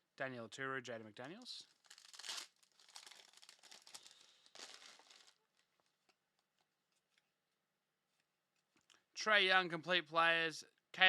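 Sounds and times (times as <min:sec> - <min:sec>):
card pack wrapper crinkling: 0:01.7 - 0:06.1.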